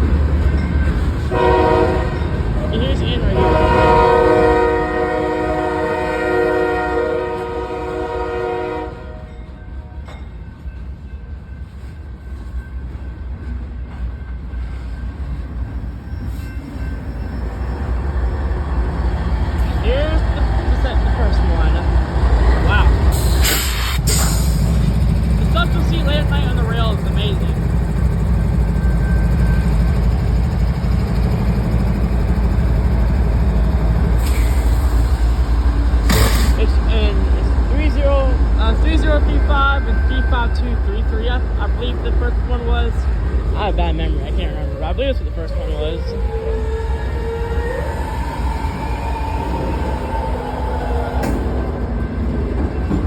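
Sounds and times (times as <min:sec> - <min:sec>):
train rumbling past: 0:00.0 - 0:53.0.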